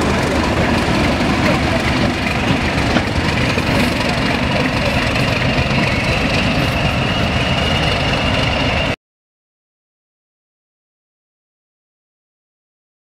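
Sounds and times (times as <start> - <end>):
diesel locomotive engine running: 0.0 - 9.0
steady high whistle: 5.0 - 9.0.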